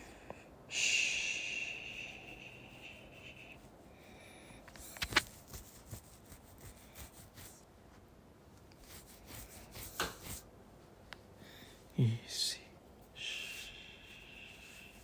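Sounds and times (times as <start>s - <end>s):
faint rustling: 2.7s - 11.9s.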